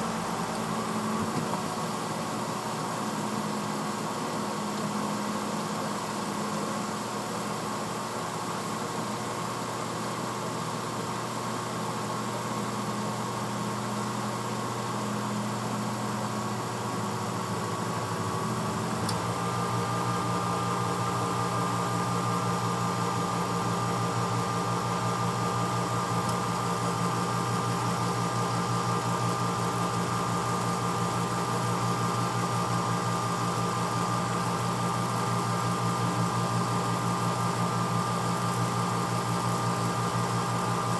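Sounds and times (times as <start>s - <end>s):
dishwasher motor hum: 0.0s - 2.6s, 11.7s - 40.9s.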